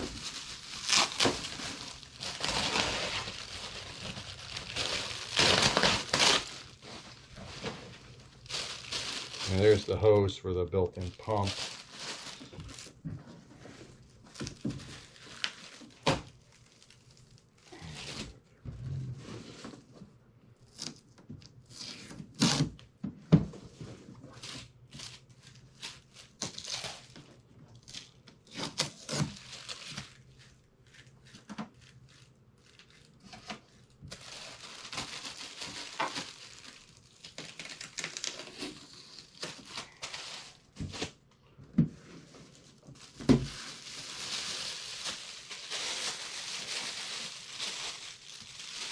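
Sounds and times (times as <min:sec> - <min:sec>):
packaging tearing: 0:00.0 - 0:10.0, 0:11.0 - 0:13.0, 0:24.4 - 0:27.2, 0:27.8 - 0:30.4, 0:31.7 - 0:41.2, 0:42.5 - 0:48.9
packaging crinkling and rustling: 0:00.0 - 0:18.4, 0:24.2 - 0:48.9.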